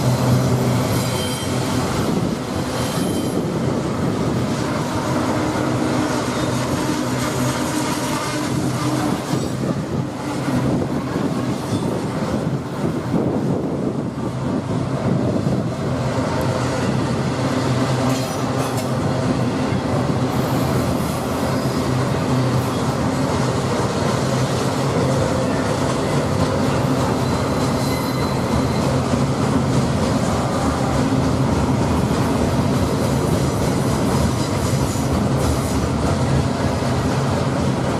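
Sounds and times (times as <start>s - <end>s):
train wheels clattering on rail: 0.0s - 37.9s
faint wheel squeal: 0.8s - 1.7s, 27.2s - 29.0s.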